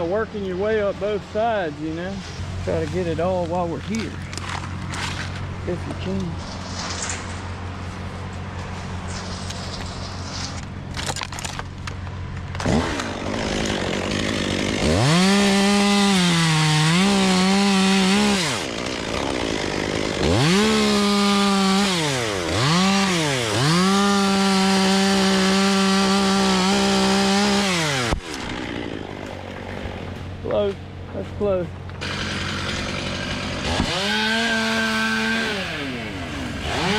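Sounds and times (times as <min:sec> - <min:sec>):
chainsaw revving and cutting: 0:12.6 - 0:30.2, 0:32.0 - 0:36.9.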